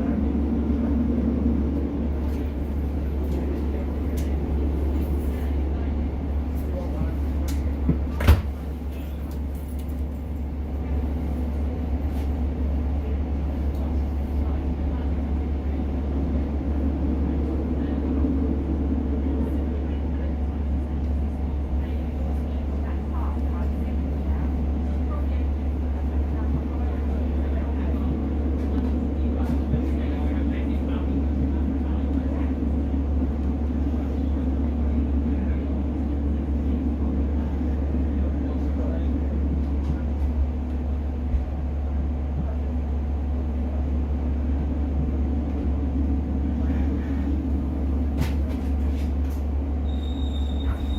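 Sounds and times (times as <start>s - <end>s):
train carriage drone and rumble: 0.0s - 50.9s.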